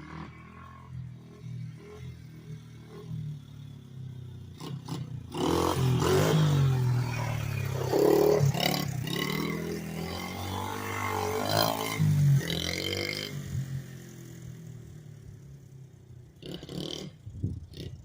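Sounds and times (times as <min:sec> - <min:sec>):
small motorbike engine revving: 0:04.4 - 0:15.1, 0:16.3 - 0:18.0.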